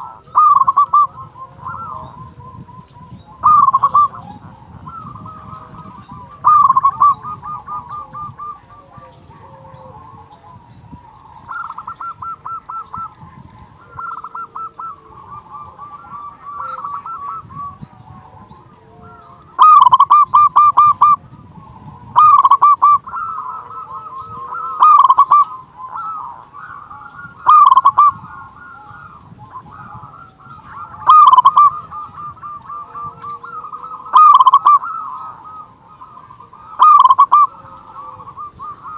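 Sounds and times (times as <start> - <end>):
doves cooing: 0.0 - 38.9.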